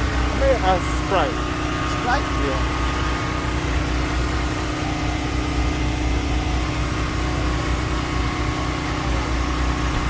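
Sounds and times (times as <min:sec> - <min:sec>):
engine hum: 0:00.0 - 0:10.0.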